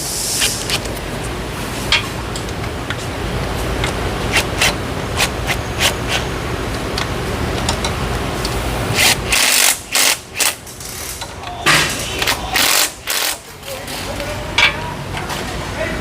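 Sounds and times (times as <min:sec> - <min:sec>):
steady low hum: 0:00.0 - 0:16.0
power tool driving bolts: 0:08.9 - 0:11.2.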